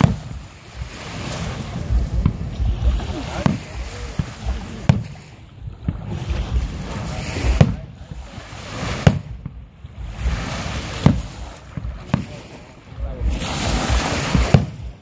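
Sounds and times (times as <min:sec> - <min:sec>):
firework booms: 0:00.0 - 0:15.0
lake waves: 0:00.0 - 0:15.0
wind on microphone: 0:00.0 - 0:15.0.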